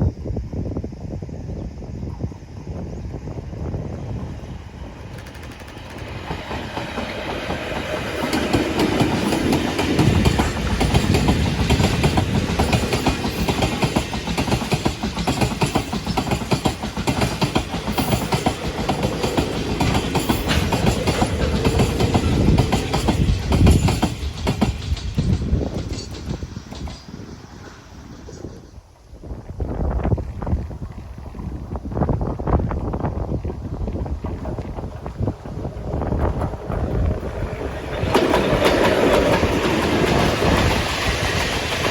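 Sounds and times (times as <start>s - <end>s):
freight train passing close: 0.5s - 41.9s
train wheels clacking over rail joints: 4.9s - 28.5s, 33.7s - 41.9s.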